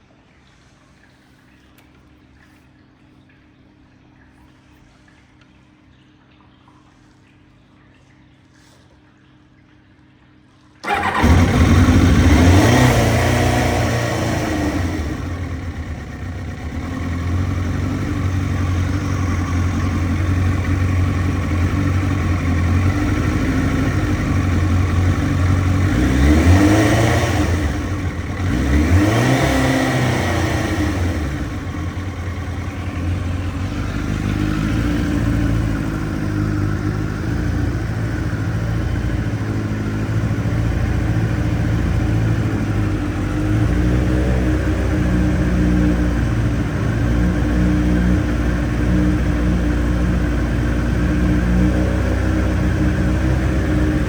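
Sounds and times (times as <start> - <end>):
motorcycle engine revving: 10.8 - 54.0.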